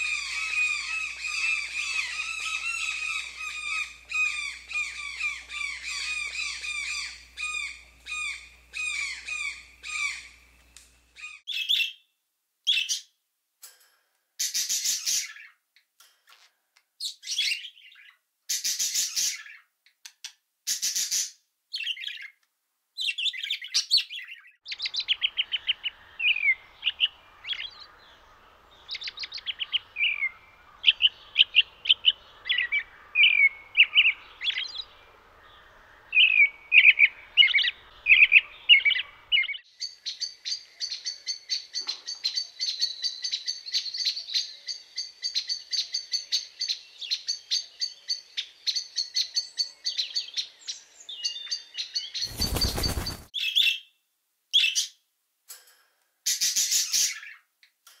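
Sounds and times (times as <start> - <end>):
small birds chirping: 0.0 - 13.2, 14.4 - 55.0, 56.3 - 58.0.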